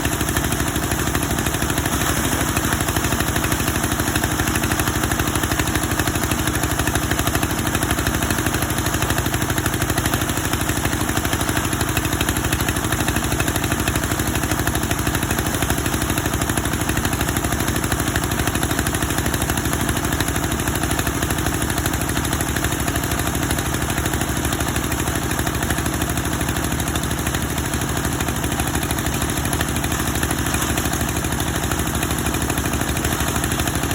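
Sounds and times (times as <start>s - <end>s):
wood veneer machine droning: 0.0s - 15.1s, 25.7s - 33.9s.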